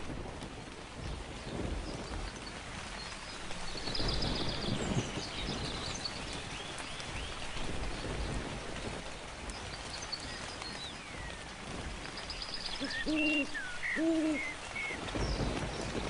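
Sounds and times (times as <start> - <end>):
steady rain: 0.0 - 16.0
thunder rumble: 0.0 - 16.0
birds chirping: 9.5 - 16.0.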